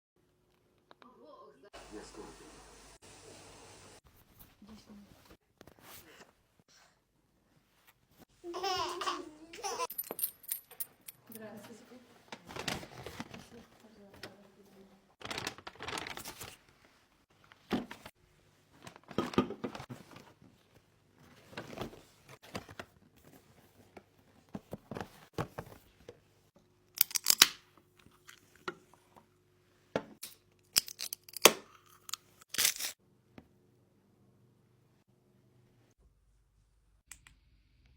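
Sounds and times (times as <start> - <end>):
tearing and crinkling: 15.2 - 16.6, 30.8 - 33.0.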